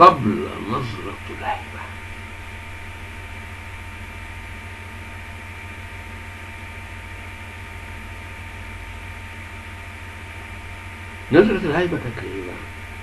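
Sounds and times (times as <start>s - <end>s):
faint steady tones: 0.0s - 13.0s
low electrical hum: 0.0s - 13.0s
steady hiss: 0.0s - 13.0s.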